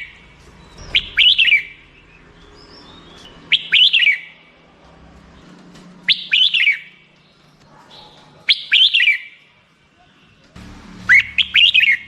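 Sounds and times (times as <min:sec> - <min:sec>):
bird whistling song: 0:00.0 - 0:04.4, 0:06.1 - 0:07.0, 0:08.0 - 0:09.4, 0:11.1 - 0:12.0.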